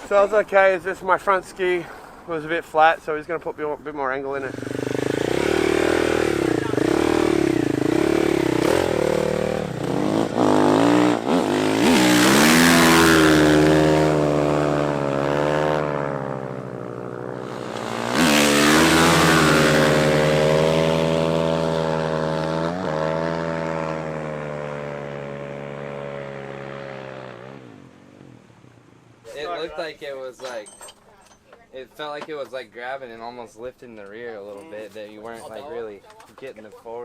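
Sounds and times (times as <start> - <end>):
dirt bike engine revving: 4.4 - 27.8.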